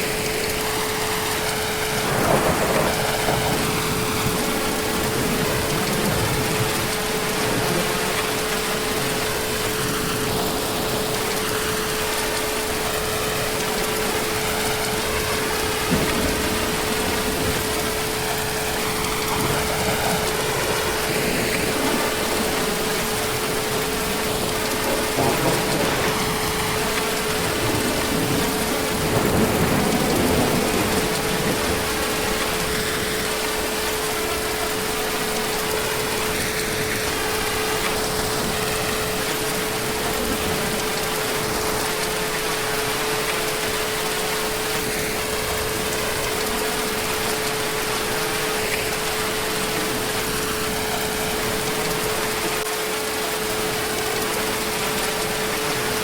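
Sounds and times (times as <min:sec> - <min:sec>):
heavy rain falling: 0:00.0 - 0:56.0
distant thunder: 0:01.7 - 0:11.3, 0:13.3 - 0:33.6.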